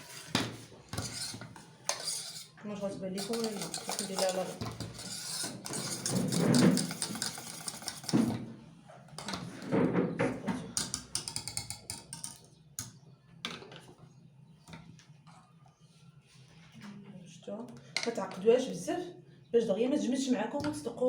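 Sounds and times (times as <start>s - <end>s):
utensil scraping a saucepan: 0.0s - 8.4s.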